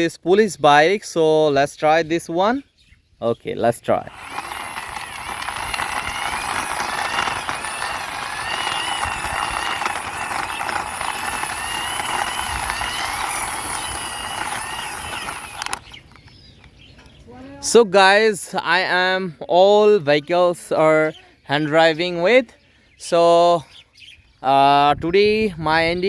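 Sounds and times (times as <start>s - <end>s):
toy wheels scraping concrete: 3.8s - 16.6s
wavering whine: 4.1s - 15.8s.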